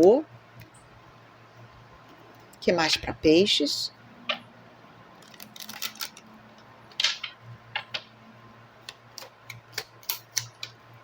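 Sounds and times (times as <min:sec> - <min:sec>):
cards being shuffled: 0:05.2 - 0:06.2.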